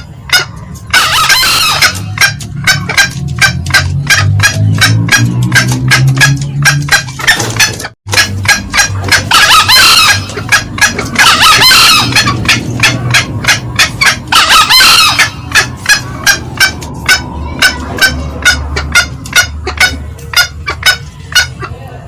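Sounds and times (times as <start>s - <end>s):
junglefowl cackling calls: 0.0s - 22.0s
low hum: 8.1s - 21.6s.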